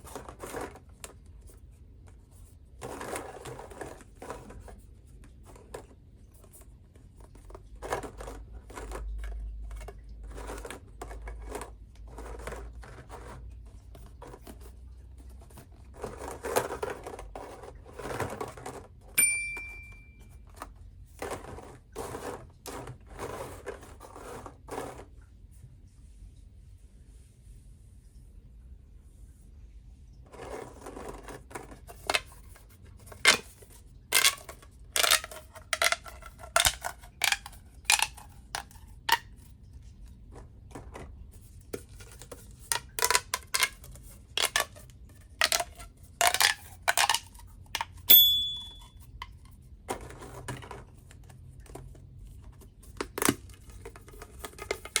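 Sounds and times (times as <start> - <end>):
brief high ring: 19.2 - 20.2, 48.1 - 48.9
plastic tubes popping and clicking: 35.0 - 39.2, 42.7 - 43.8, 45.4 - 47.9.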